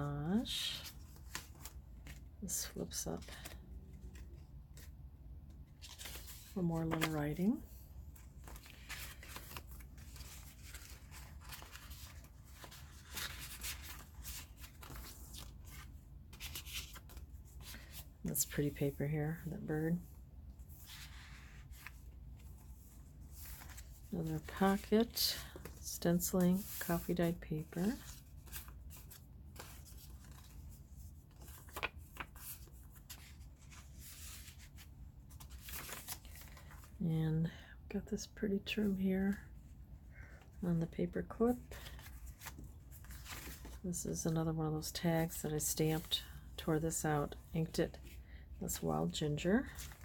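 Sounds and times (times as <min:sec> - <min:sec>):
paper pages rustling: 0:00.4 - 0:02.3, 0:05.5 - 0:18.1, 0:20.6 - 0:37.0, 0:41.6 - 0:43.8, 0:49.6 - 0:50.0.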